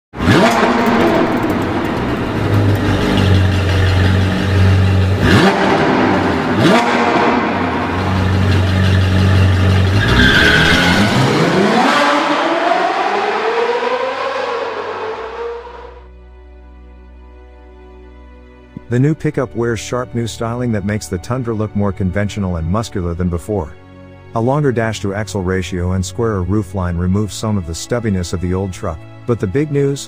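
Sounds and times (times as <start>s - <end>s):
engine revving: 0.1s - 16.1s
sports car engine note: 0.1s - 16.2s
sharp hits: 0.2s - 10.0s.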